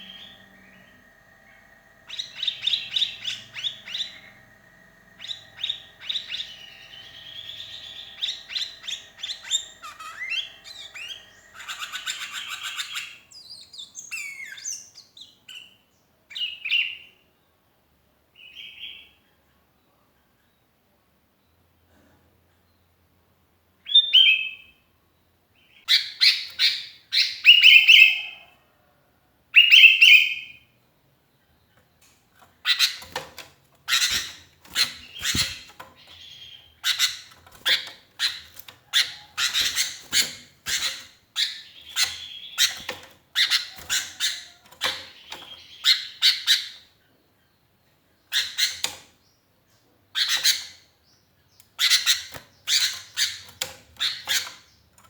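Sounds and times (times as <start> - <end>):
bulbul chattering calls: 0.0 - 14.8, 33.9 - 46.7.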